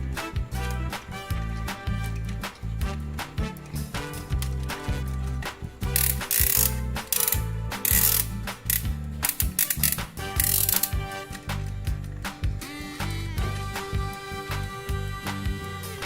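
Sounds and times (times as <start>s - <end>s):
background music: 0.0s - 16.0s
mechanical ratcheting and clicking: 5.4s - 11.2s.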